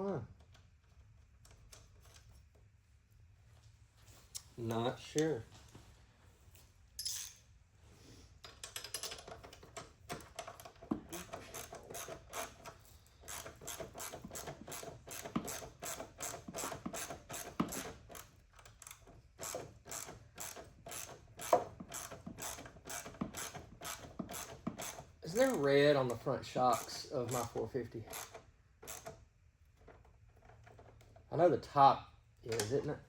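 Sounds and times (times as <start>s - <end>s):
ratchet wrench clicking: 13.3s - 25.7s, 28.1s - 29.2s.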